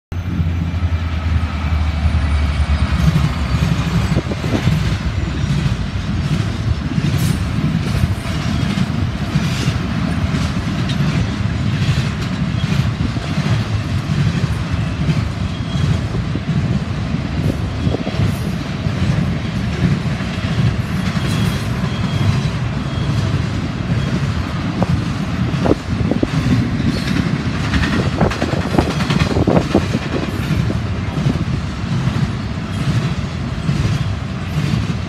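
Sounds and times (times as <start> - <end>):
train wheels rumbling on rail: 0.1 - 35.0
wheels clicking over rail joints: 17.4 - 35.0.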